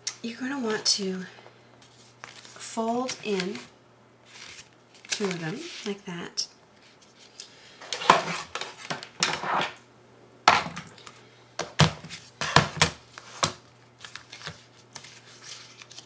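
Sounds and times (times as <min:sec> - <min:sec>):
crisp paper rustles: 0:01.8 - 0:03.7, 0:04.3 - 0:06.0, 0:14.0 - 0:16.0.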